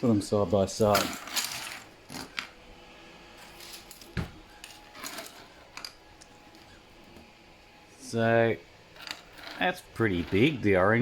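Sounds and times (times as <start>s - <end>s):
plastic models clicking and rattling: 0.8s - 2.5s, 3.6s - 6.7s.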